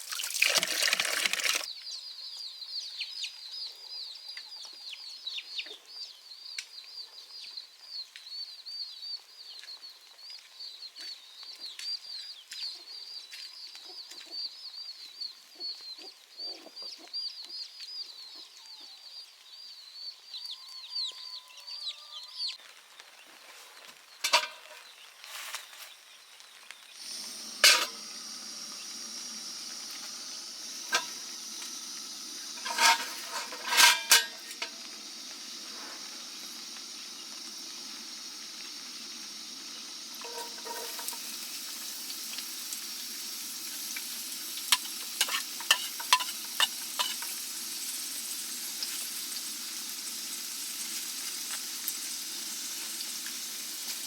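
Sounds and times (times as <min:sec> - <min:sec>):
food sizzling in a pan: 0:24.2 - 0:25.6, 0:26.9 - 0:54.0
utensil clinking against pan: 0:32.6 - 0:34.8, 0:44.7 - 0:47.3.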